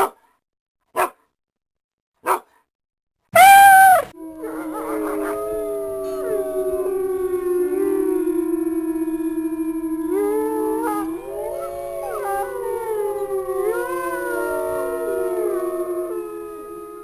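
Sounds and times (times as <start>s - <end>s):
dog barking: 0.0s - 0.2s, 0.9s - 1.3s, 2.2s - 2.6s
dog howling: 3.4s - 17.0s.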